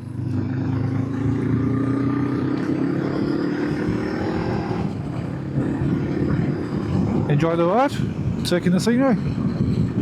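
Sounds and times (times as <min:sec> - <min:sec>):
motorcycle engine accelerating: 0:00.0 - 0:07.4.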